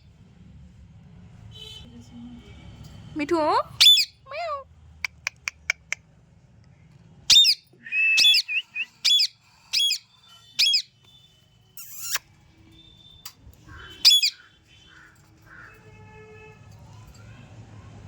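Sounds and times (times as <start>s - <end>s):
parrot screeching: 3.8s - 4.1s, 7.3s - 10.0s, 10.6s - 10.9s, 11.8s - 12.2s, 13.7s - 16.0s
parrot soft chirps: 3.8s - 4.2s, 7.3s - 11.0s, 11.8s - 12.3s, 13.7s - 14.5s.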